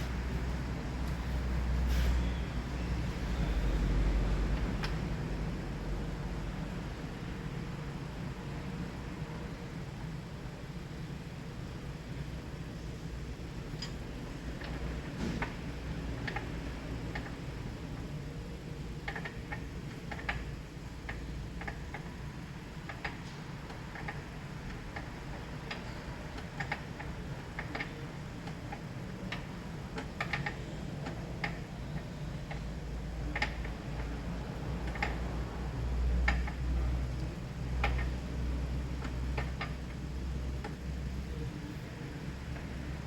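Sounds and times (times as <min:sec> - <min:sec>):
low steady hum: 0:00.0 - 0:15.1.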